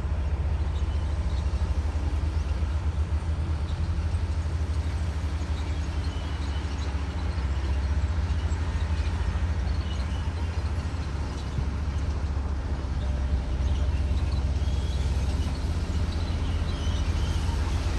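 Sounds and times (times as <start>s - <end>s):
bulldozer diesel engine droning: 0.0s - 17.9s.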